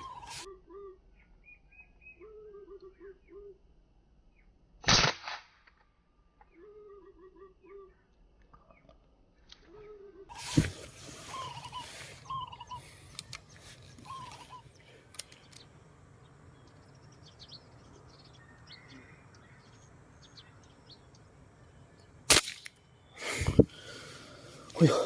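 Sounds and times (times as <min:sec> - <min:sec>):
small birds chirping: 0:00.0 - 0:03.6, 0:06.4 - 0:25.0
air rifle shot: 0:04.8 - 0:05.6, 0:22.3 - 0:22.7.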